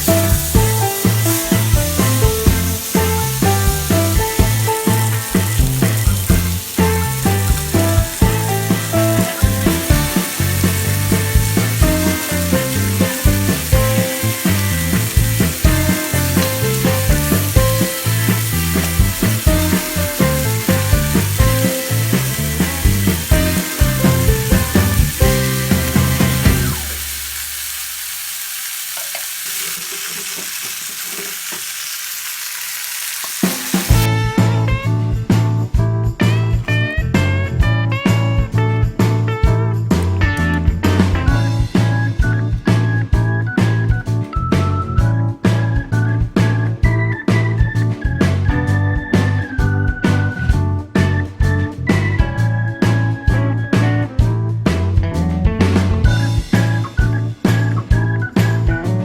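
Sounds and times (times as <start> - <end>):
background music with beat: 0.0 - 27.1, 33.7 - 59.0
utensil knocking: 0.0 - 27.3
fish sizzling in hot oil: 0.0 - 34.1.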